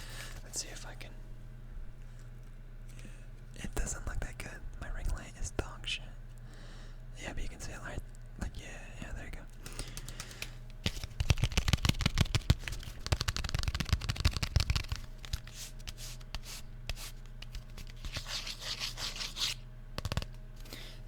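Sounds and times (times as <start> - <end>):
fingers tapping on trading cards: 9.6 - 18.4, 20.0 - 20.7
scratchy rustle: 10.9 - 19.6.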